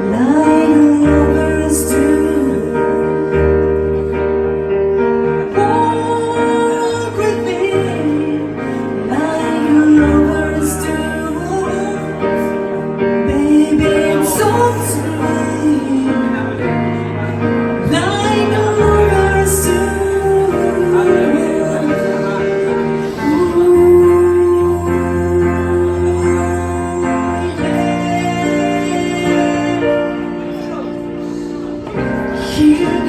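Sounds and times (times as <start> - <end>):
piano chords: 0.0 - 33.0
woman singing a slow ballad: 0.0 - 33.0.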